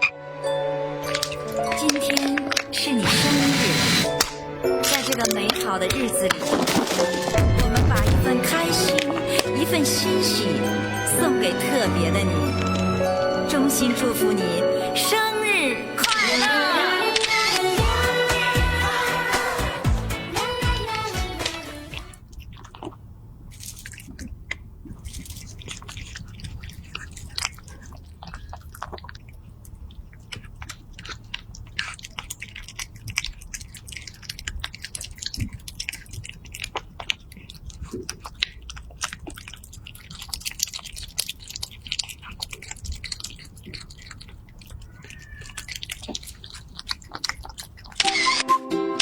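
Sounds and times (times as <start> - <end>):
music: 0.0 - 22.1, 48.1 - 49.0
cat chewing and crunching food: 1.0 - 48.4.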